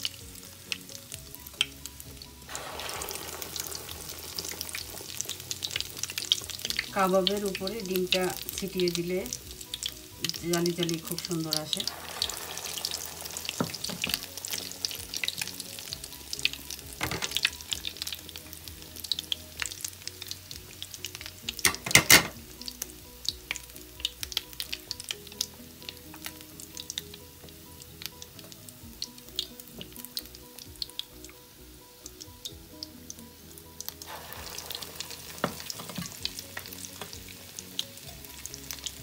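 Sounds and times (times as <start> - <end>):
patties sizzling in hot oil: 0.0 - 39.0.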